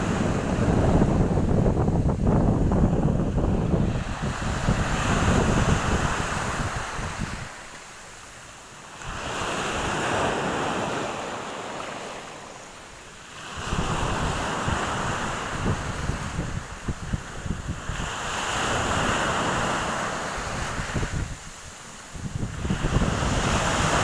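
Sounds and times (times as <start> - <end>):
wind buffeting microphone: 0.0 - 7.7, 13.4 - 24.0
waves washing on shore: 0.0 - 24.0.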